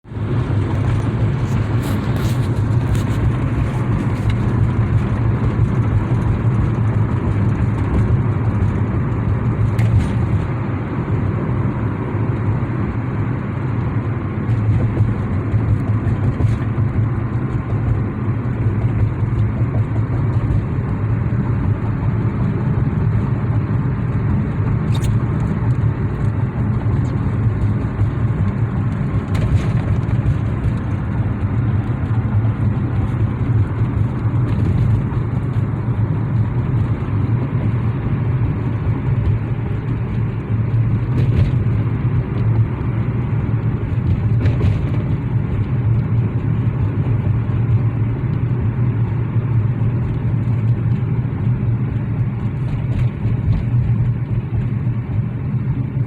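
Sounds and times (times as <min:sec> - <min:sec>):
wind rumble on microphone: 0:00.0 - 0:56.0.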